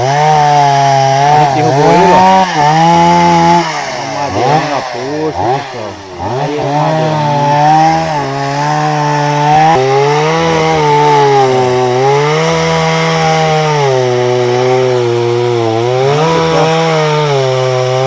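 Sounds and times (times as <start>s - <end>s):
chainsaw cutting a log: 0.0s - 18.0s.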